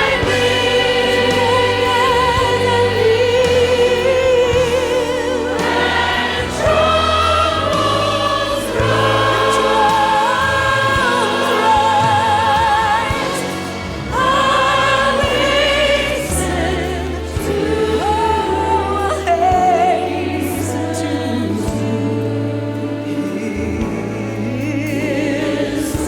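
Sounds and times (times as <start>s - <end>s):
instrumental accompaniment: 0.0s - 26.0s
voices singing a hymn: 0.0s - 26.0s.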